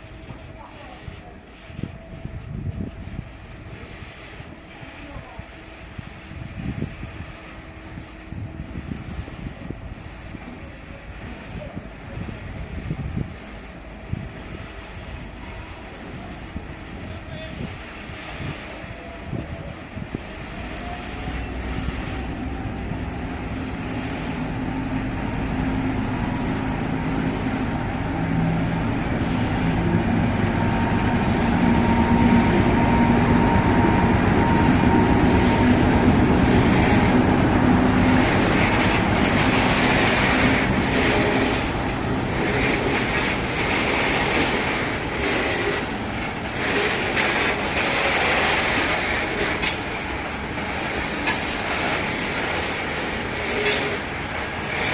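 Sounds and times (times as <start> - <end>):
train wheel noise: 0.0 - 54.9
locomotive engine hum: 20.2 - 54.9
wheels clicking over rail joints: 38.0 - 54.9.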